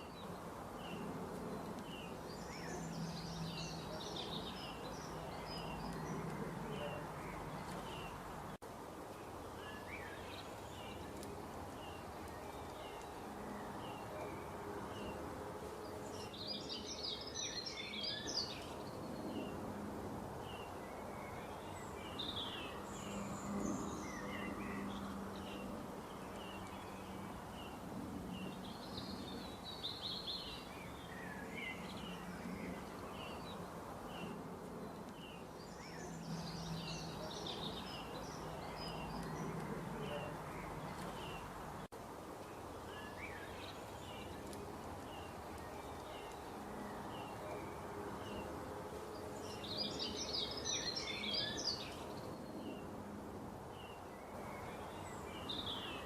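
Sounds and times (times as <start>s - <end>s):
steady background hiss: 0.0s - 56.0s
birds chirping and singing: 49.4s - 52.8s.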